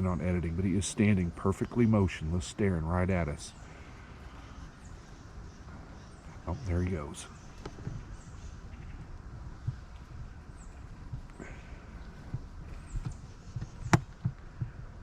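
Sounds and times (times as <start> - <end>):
small birds chirping: 0.0 - 15.0
hooves thudding on forest floor: 3.7 - 15.0.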